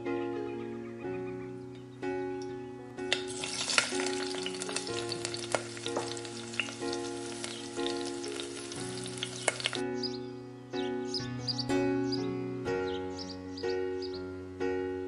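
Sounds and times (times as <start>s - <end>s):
okra sizzling in hot oil: 3.1s - 9.8s
spoon stirring in pan: 3.2s - 9.8s.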